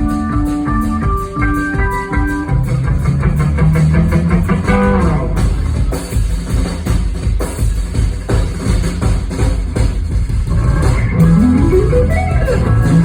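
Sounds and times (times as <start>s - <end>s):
electric guitar playing: 0.0s - 5.6s, 11.0s - 13.0s
bass: 0.0s - 13.0s
drums: 0.0s - 13.0s.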